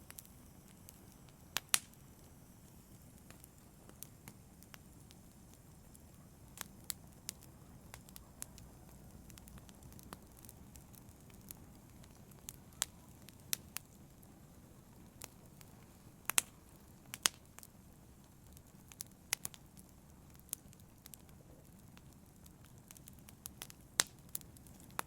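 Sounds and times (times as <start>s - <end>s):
low rush of burning: 0.0s - 25.0s
wood fire crackling: 0.0s - 25.0s
sharp pops and snaps: 0.1s - 2.3s, 16.2s - 17.7s, 22.7s - 25.0s.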